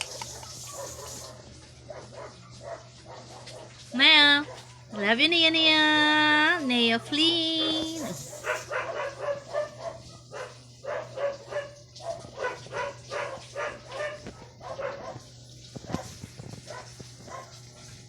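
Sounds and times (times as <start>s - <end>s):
puppy yapping: 7.5s - 15.3s.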